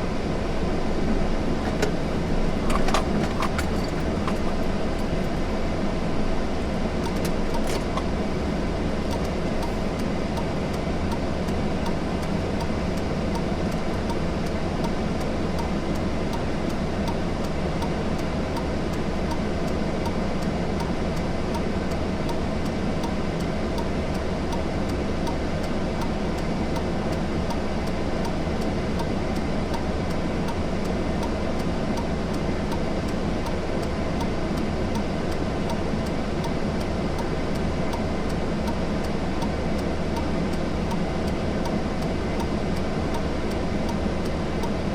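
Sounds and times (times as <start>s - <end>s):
car road noise rumbling: 0.4s - 13.9s.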